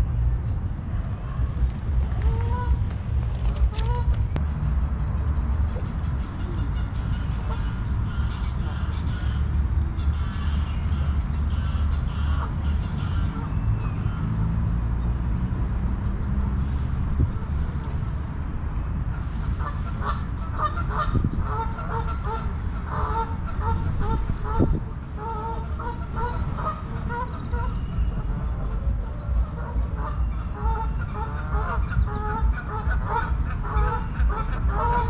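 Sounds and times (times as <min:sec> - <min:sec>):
low rumble: 0:00.0 - 0:35.0
geese honking: 0:02.0 - 0:02.9, 0:05.8 - 0:14.4, 0:19.1 - 0:28.4, 0:29.0 - 0:35.0
small birds chirping: 0:26.5 - 0:34.3.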